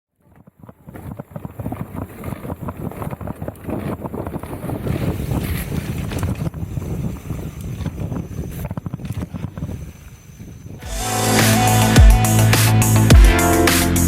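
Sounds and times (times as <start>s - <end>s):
wind buffeting microphone: 0.2s - 10.9s.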